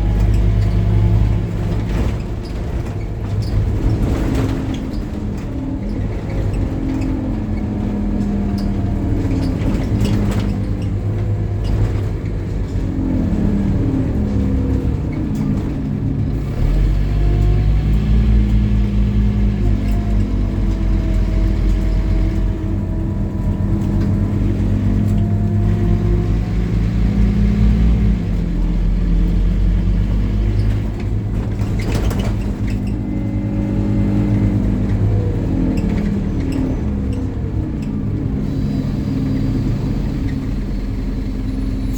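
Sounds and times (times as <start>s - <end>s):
bus diesel engine under load: 0.0s - 41.9s.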